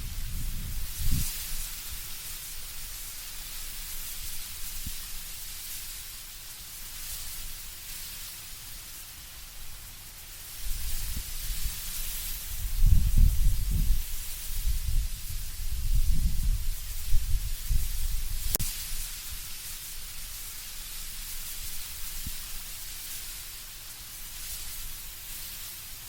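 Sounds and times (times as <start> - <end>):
low rumble of wind gusts: 0.0 - 5.6, 10.5 - 23.2
leaves rustling in wind: 0.0 - 26.0.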